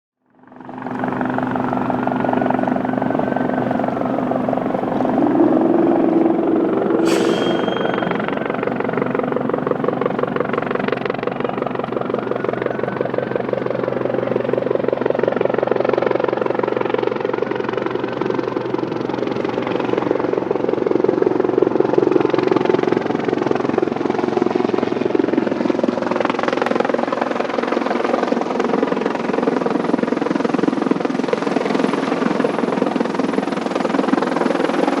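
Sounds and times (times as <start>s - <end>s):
helicopter rotor chop: 0.3s - 35.0s
turbine whine: 0.4s - 15.0s.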